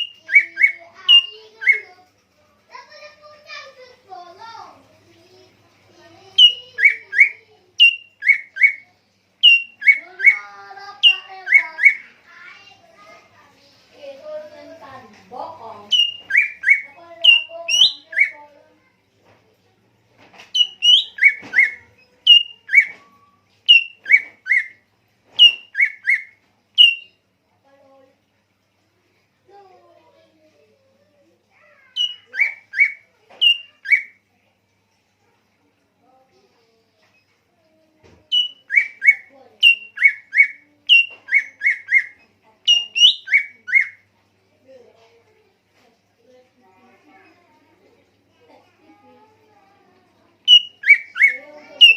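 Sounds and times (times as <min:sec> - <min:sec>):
songbird whistled notes: 0:00.0 - 0:01.8, 0:06.4 - 0:08.8, 0:09.4 - 0:10.4, 0:15.9 - 0:18.4, 0:20.6 - 0:23.0, 0:23.7 - 0:24.8, 0:25.4 - 0:27.2, 0:32.0 - 0:34.2, 0:38.3 - 0:44.0, 0:50.5 - 0:51.9.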